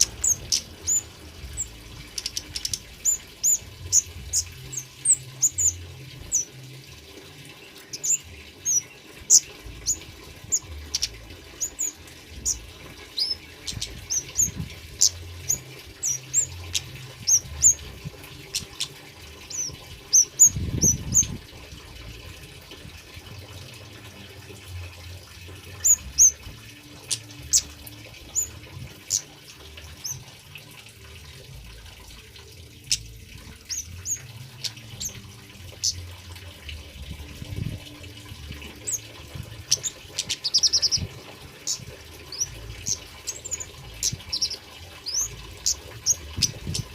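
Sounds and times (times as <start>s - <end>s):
bird chirping high: 0.0s - 6.7s, 7.6s - 21.4s, 25.7s - 30.3s, 32.8s - 36.1s, 38.6s - 46.9s
water trickling: 0.0s - 46.9s.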